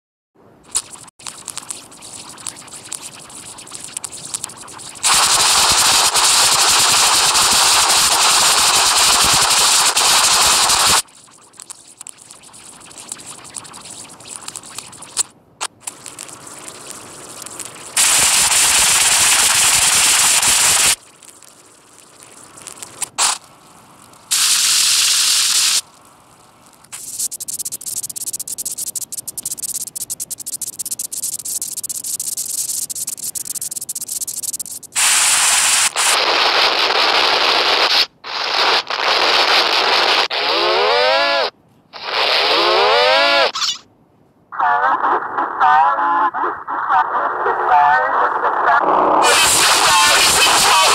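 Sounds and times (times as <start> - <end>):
harsh static noise: 0.6 - 43.9, 44.5 - 50.9
quiet crackling: 0.7 - 40.3.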